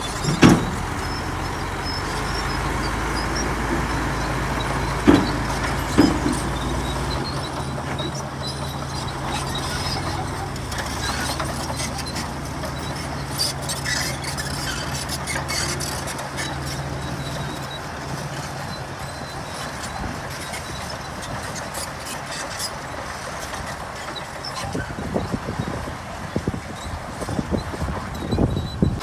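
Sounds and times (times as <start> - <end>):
loud knocks: 0.0 - 1.4, 4.9 - 6.6
diesel engine running: 0.0 - 29.0.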